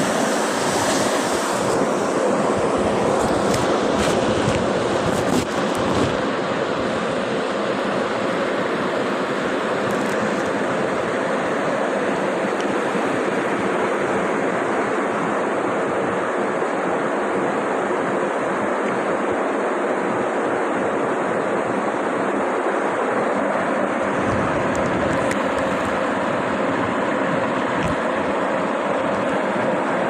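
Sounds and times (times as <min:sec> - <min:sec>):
flowing water rushing: 0:00.0 - 0:30.0.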